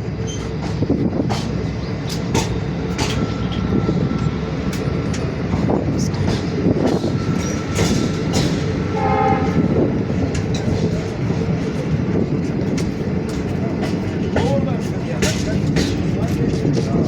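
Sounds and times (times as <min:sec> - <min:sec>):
train rumbling past: 0:00.0 - 0:17.0
train horn blast: 0:08.9 - 0:10.0.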